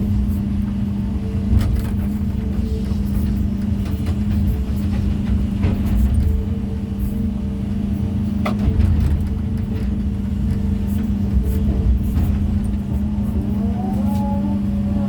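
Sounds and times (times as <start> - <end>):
diesel engine running: 0.0 - 15.0
rising and falling whine: 12.8 - 15.0.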